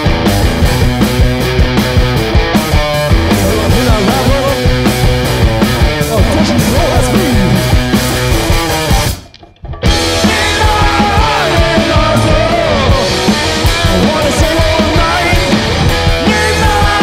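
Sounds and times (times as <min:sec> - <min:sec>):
rock band playing loud song: 0:00.0 - 0:17.0.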